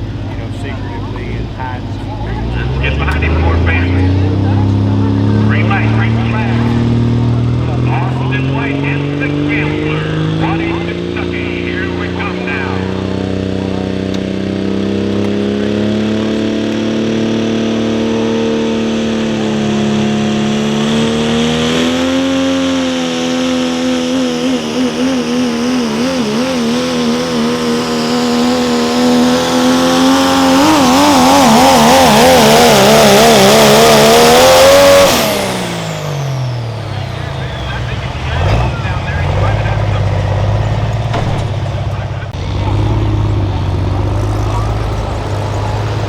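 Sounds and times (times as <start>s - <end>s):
diesel engine at full throttle: 0.0s - 46.0s.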